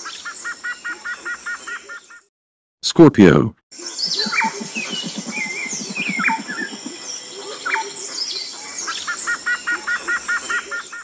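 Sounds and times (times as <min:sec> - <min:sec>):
birds chirping and calling: 0:00.0 - 0:02.3, 0:03.8 - 0:11.0
high insect-like hiss: 0:03.8 - 0:08.2.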